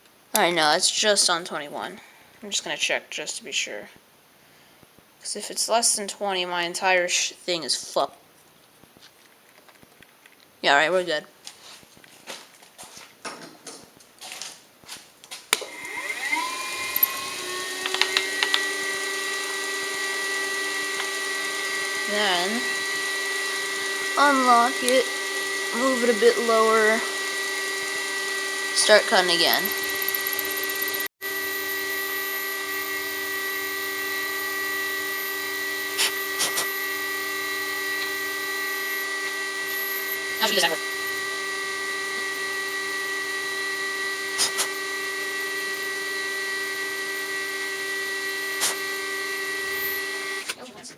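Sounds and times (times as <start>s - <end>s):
milling machine motor whine: 15.6s - 50.6s
switch click: 17.8s - 18.7s
sharp ticks: 28.8s - 31.1s.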